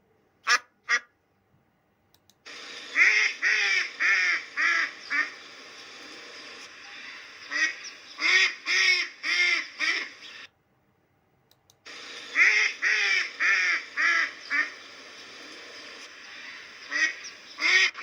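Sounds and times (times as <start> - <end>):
duck quacking: 0.4 - 1.1, 3.0 - 5.3, 7.5 - 10.4, 12.4 - 14.7, 16.9 - 18.0.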